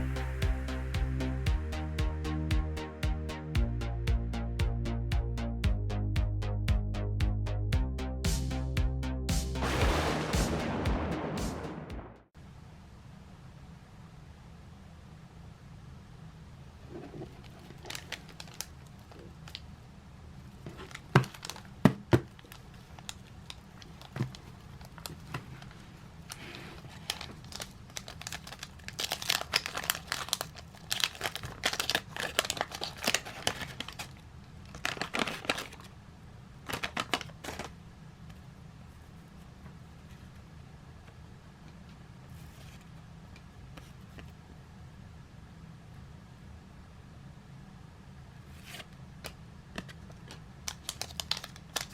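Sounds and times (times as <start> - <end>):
wrapper tearing and crinkling: 27.0 - 35.9, 50.7 - 51.9.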